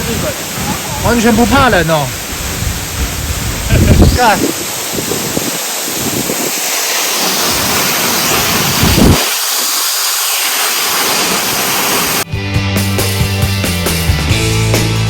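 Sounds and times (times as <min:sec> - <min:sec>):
waterfall rushing: 0:00.0 - 0:12.3
rock music: 0:12.3 - 0:15.0.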